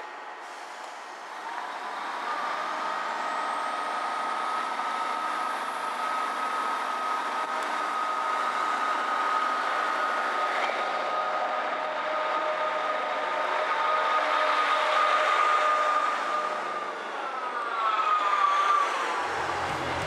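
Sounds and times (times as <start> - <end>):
train mechanical whine: 0.0 - 20.0
high rising whine: 19.1 - 20.0
train rumbling: 19.2 - 20.0.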